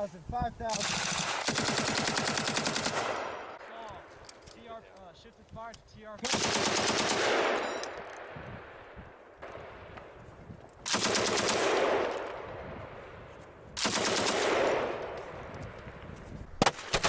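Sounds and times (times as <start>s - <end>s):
machine gun bursts echoing: 0.7s - 3.7s, 6.2s - 8.3s, 10.8s - 12.5s, 13.8s - 15.2s, 16.6s - 17.0s
single gunshots: 6.2s - 8.7s.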